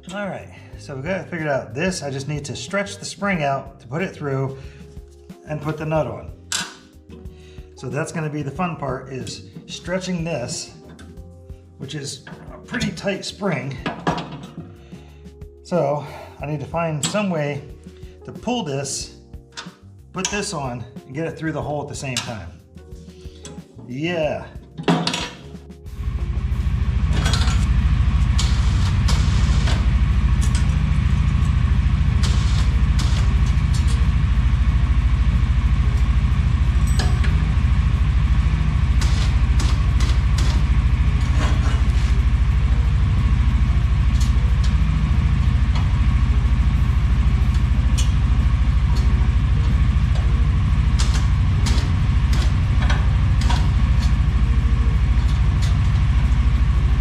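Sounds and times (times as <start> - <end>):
engine idling: 25.9 - 57.0.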